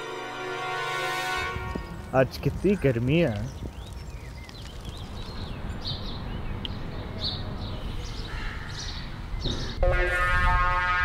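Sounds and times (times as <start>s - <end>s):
birds chirping: 1.6s - 9.9s.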